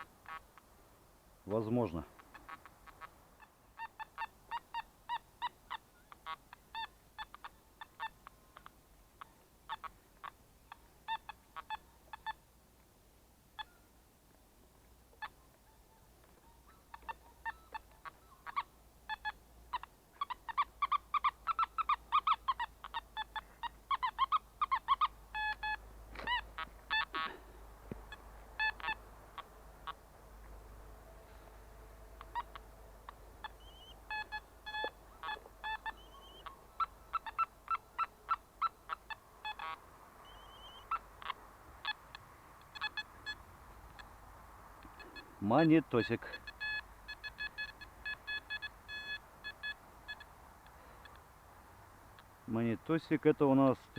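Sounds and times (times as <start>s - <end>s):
metal detector beeps: 16.4s - 18.4s, 25.4s - 26.4s, 33.4s - 36.5s, 44.9s - 50.3s.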